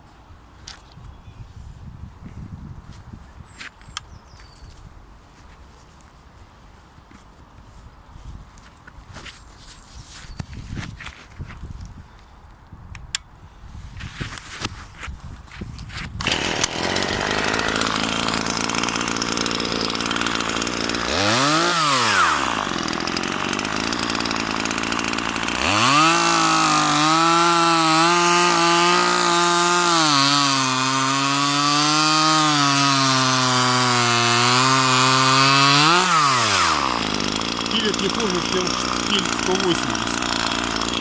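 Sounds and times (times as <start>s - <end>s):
chainsaw engine revving: 16.2s - 41.0s.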